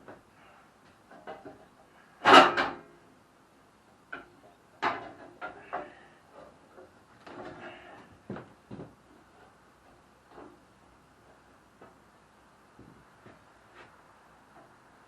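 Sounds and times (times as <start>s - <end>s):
knocks and clunks of parts: 4.1s - 6.0s, 6.7s - 9.0s.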